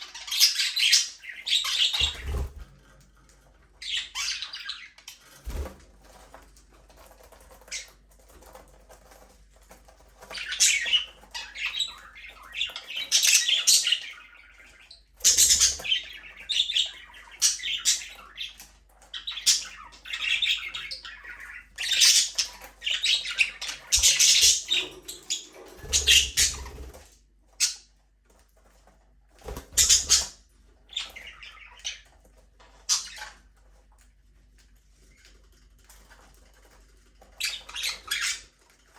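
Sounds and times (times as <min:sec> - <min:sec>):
budgerigars chirping and squawking: 0:00.0 - 0:02.6, 0:03.8 - 0:05.7, 0:10.2 - 0:28.0, 0:29.4 - 0:33.6, 0:37.2 - 0:38.9
wings fluttering: 0:01.6 - 0:03.0, 0:05.2 - 0:09.3, 0:21.9 - 0:27.2, 0:28.6 - 0:30.3.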